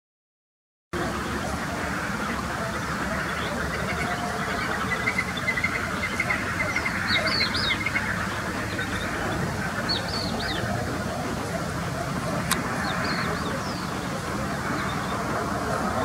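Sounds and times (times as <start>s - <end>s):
birds calling: 1.0s - 16.0s
high bird chirps: 3.3s - 9.2s.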